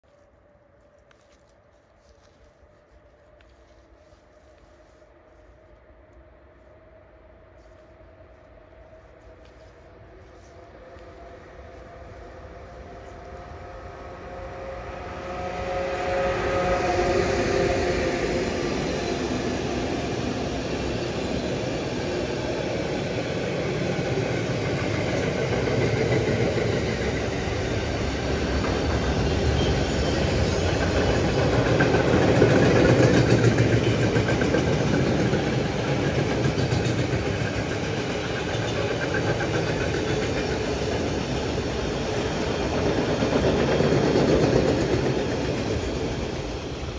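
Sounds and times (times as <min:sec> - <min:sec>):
electric locomotive whine: 0:00.0 - 0:46.9
freight train wheels clattering: 0:23.3 - 0:46.9.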